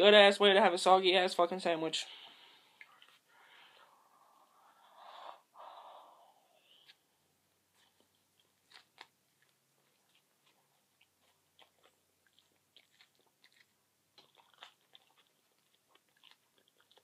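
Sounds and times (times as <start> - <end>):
chewing and biting sandwich: 7.7 - 17.0.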